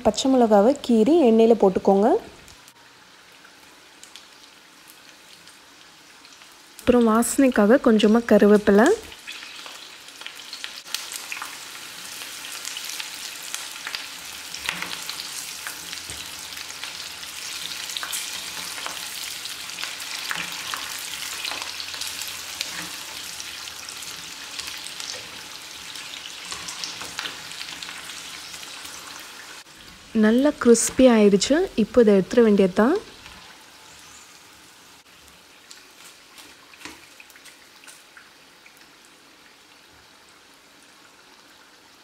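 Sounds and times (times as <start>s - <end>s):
food deep-frying in oil: 0.0s - 42.0s.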